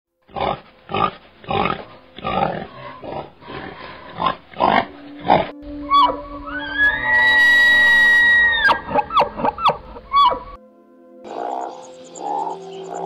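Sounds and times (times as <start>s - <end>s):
pigs grunting: 0.3s - 6.2s, 8.3s - 10.6s.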